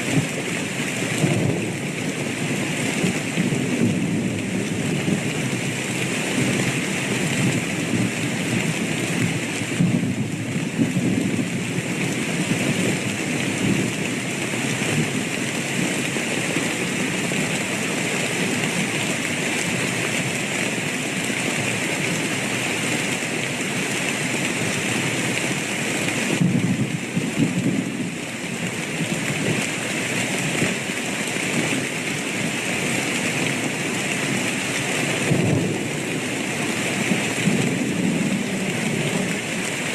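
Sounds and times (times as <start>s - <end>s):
steady rain falling: 0.0s - 39.9s
low rolling thunder: 6.3s - 11.8s, 35.1s - 39.9s.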